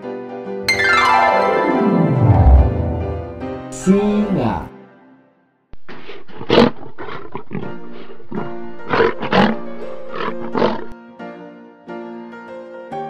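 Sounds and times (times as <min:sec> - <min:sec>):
background music: 0:00.0 - 0:05.2
lion roaring: 0:06.3 - 0:11.0.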